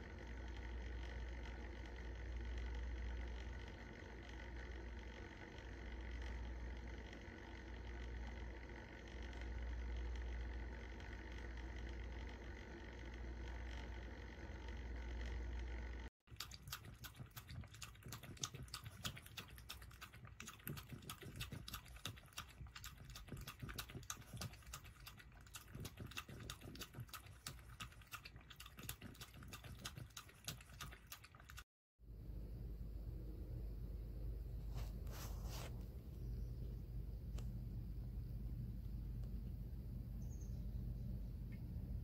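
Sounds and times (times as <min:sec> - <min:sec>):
steady low hum: 0:00.0 - 0:42.0
cat lapping water: 0:16.3 - 0:31.7.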